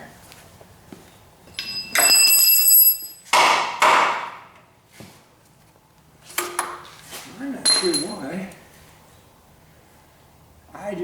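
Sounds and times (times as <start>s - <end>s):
metal hoist chains creaking: 1.5s - 3.2s, 7.6s - 8.5s.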